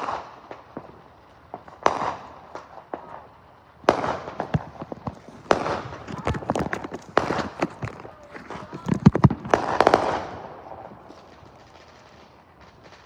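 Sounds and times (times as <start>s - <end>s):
loud firework bangs: 0.0s - 7.3s, 9.2s - 13.0s
firework crackling: 0.0s - 7.4s, 8.0s - 13.0s
small firework pops: 0.0s - 13.0s.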